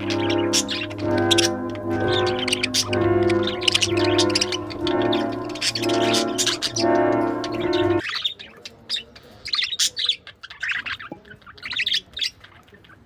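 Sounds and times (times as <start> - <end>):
background music: 0.0 - 8.0
pet birds chirping: 0.0 - 13.0.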